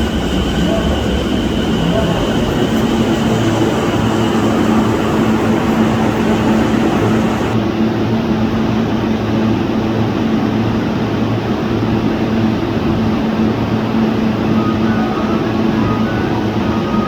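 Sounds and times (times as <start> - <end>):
electric train hum: 0.0 - 7.6
train rumble: 0.0 - 7.6.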